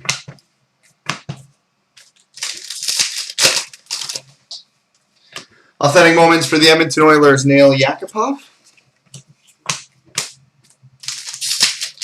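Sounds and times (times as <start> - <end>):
trading cards rustling: 2.0 - 4.3, 11.0 - 12.0.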